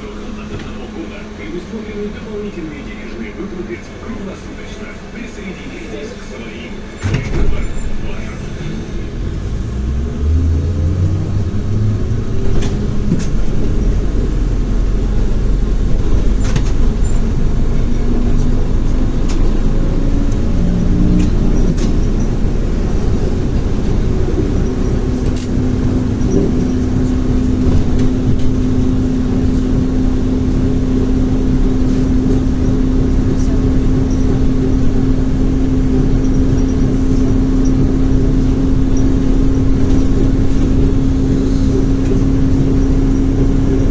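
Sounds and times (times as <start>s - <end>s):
steady hum: 0.0s - 43.9s
trolleybus motor whine: 0.0s - 43.9s
clicks and rattles: 11.3s - 17.6s, 21.0s - 29.7s.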